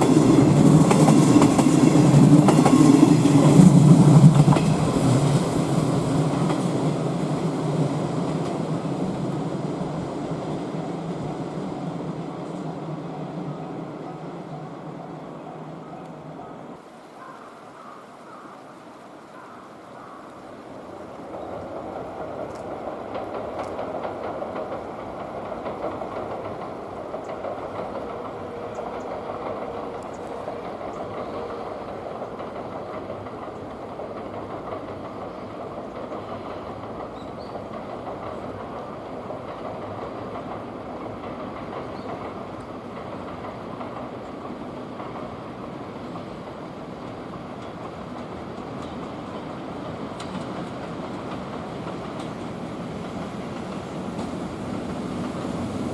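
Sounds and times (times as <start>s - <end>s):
train wheels rolling on rails: 0.0s - 16.9s, 20.4s - 55.9s.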